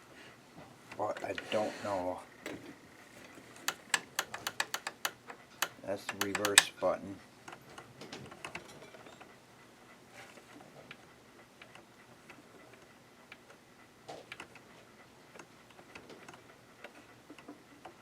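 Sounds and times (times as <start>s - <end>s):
sewing machine parts clicking: 3.2s - 6.8s.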